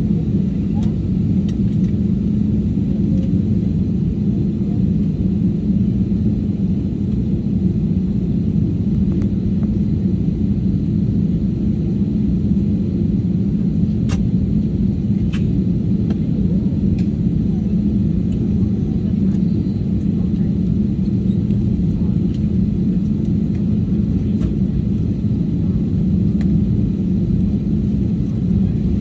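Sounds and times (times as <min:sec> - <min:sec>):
airliner cabin drone: 0:00.0 - 0:29.0.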